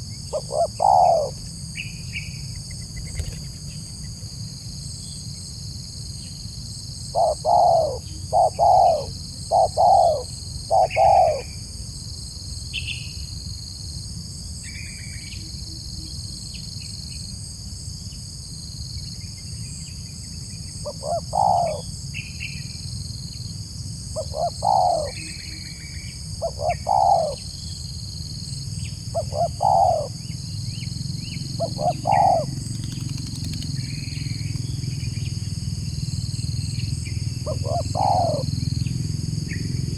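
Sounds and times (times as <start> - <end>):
dove cooing: 0.0 - 1.6, 7.1 - 11.6, 20.8 - 21.9, 24.2 - 25.8, 26.4 - 27.5, 29.1 - 35.5, 37.3 - 38.7
high insect buzz: 0.0 - 10.4.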